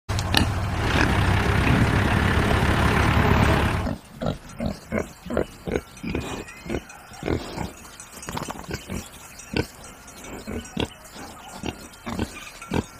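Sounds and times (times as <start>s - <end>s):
tractor engine running: 0.1s - 5.2s
pig grunting: 3.4s - 12.9s.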